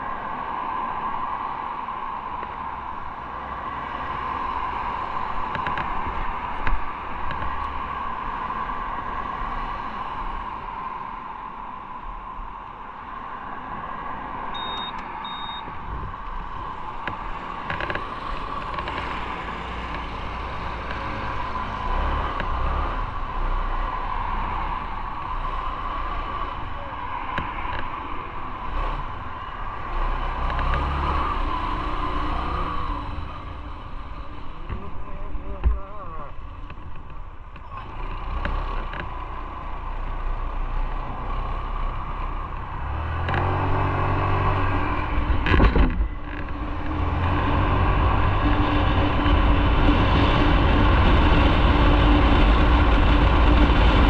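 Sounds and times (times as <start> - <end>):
wind noise: 0.0 - 54.0
short high beeps: 14.6 - 15.7.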